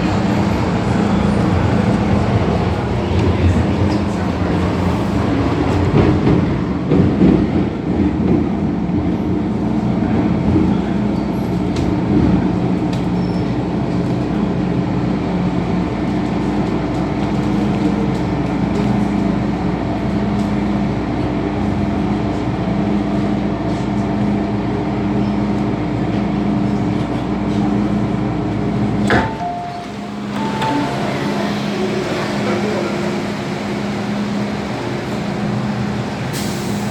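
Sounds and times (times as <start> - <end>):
train wheels rumbling on rail: 0.0 - 36.9
train motor hum: 27.5 - 36.9.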